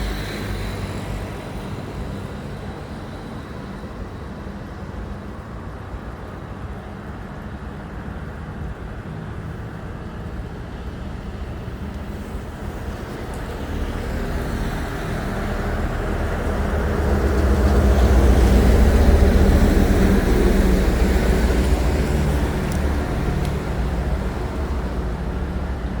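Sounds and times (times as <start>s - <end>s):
excavator diesel engine running: 10.0s - 26.0s.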